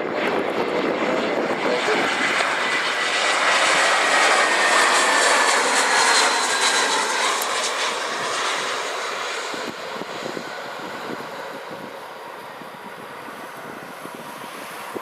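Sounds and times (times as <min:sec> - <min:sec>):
jet engines rushing and whining: 0:00.0 - 0:15.0.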